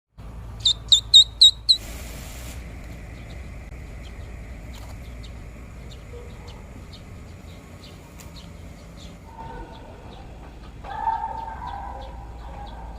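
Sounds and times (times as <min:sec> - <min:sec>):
grass blade squeaky chirps: 0:00.6 - 0:01.8.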